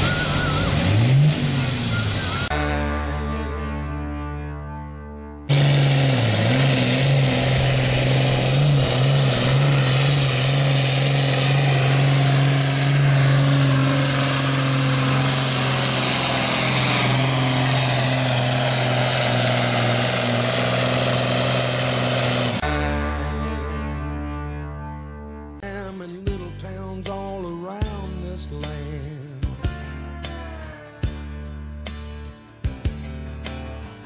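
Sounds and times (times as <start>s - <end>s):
tractor diesel engine at full throttle: 0.0s - 3.5s, 5.5s - 24.2s.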